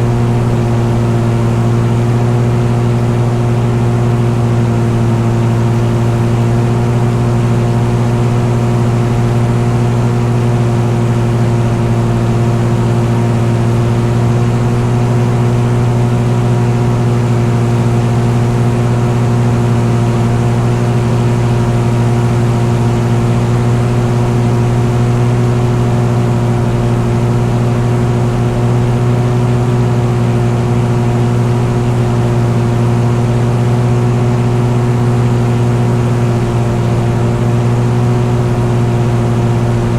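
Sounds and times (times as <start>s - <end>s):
engine droning steadily: 0.0s - 39.9s.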